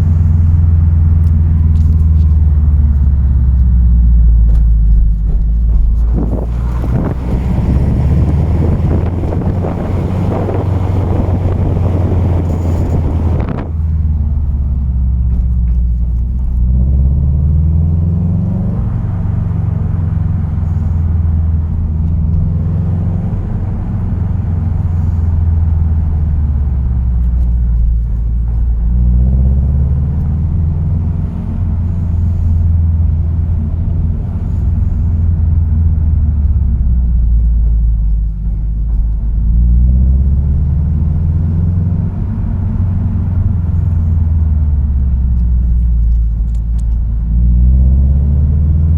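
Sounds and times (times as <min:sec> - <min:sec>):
car engine accelerating: 0:00.0 - 0:48.9
road rumble: 0:00.0 - 0:48.9.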